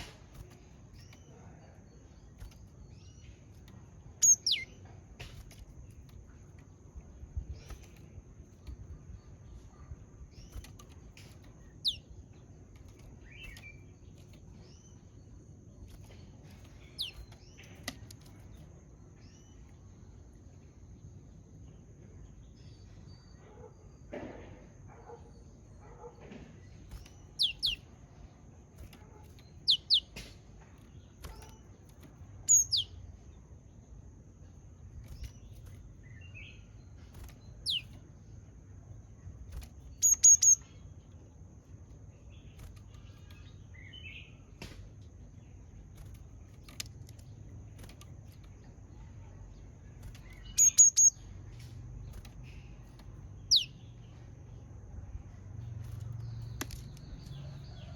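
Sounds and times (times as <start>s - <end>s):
bird giving sharp calls: 4.2s - 4.7s, 27.4s - 27.8s, 29.7s - 30.2s, 37.6s - 37.8s.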